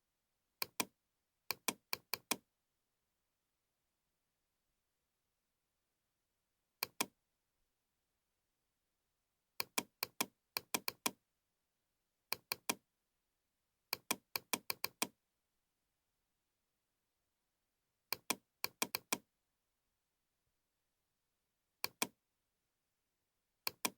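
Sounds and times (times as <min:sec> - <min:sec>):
mouse and keyboard clicks: 0:00.6 - 0:00.9, 0:01.5 - 0:02.4, 0:06.8 - 0:07.1, 0:09.6 - 0:11.2, 0:12.3 - 0:12.8, 0:14.0 - 0:15.1, 0:18.1 - 0:19.2, 0:21.8 - 0:22.1, 0:23.7 - 0:23.9.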